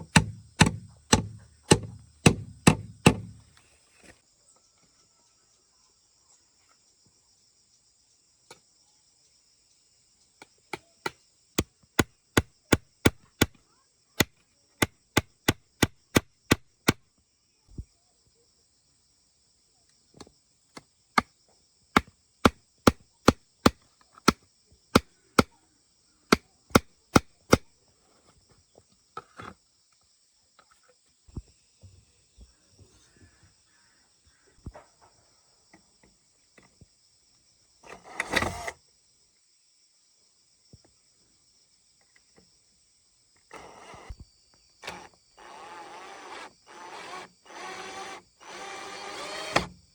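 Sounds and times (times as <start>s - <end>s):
tool strikes on wood: 0.0s - 3.4s, 10.7s - 13.6s, 14.2s - 17.0s, 22.0s - 25.5s, 26.3s - 27.7s
insects buzzing: 0.0s - 4.8s, 5.5s - 49.9s.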